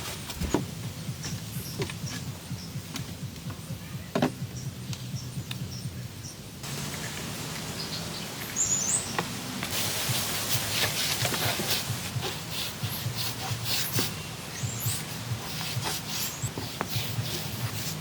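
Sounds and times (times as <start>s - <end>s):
wood knocking and rustling: 0.2s - 2.3s
bird chirps: 3.5s - 9.3s, 14.1s - 15.2s.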